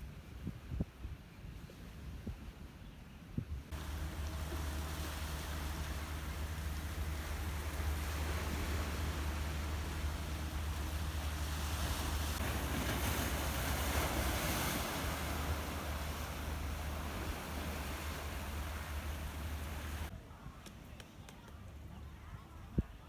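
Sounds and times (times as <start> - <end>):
wind rumbling on microphone: 0.0 - 20.1
sea waves washing on shore: 3.7 - 20.1.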